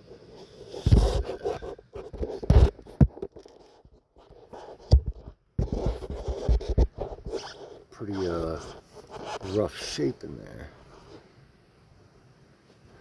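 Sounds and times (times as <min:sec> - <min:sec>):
scraping and rustling: 0:00.0 - 0:10.0
sharp knocks and thumps: 0:00.8 - 0:01.4, 0:02.1 - 0:07.4.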